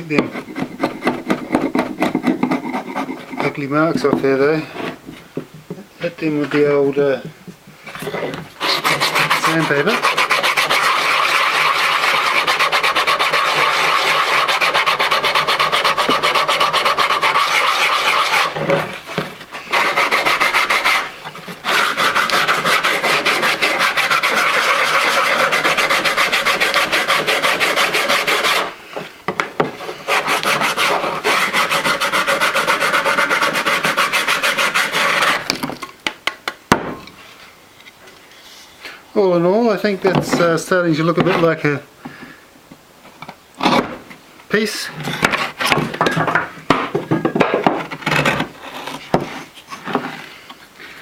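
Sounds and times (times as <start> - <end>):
sandpaper rubbing on wood: 0.2 - 3.8, 8.6 - 28.8, 29.8 - 35.5.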